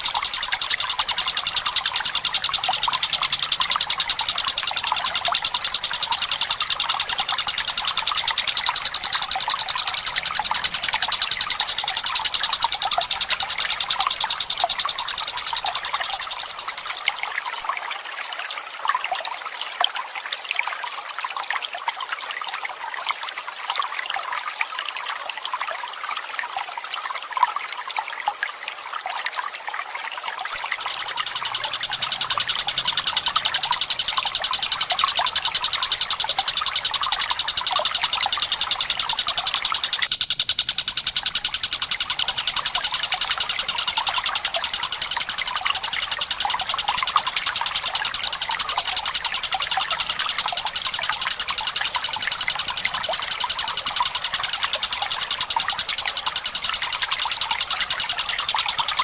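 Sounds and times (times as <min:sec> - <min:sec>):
kingfisher rolling trill: 0:00.0 - 0:16.7, 0:30.6 - 0:59.0
water trickling and dripping: 0:00.0 - 0:59.0.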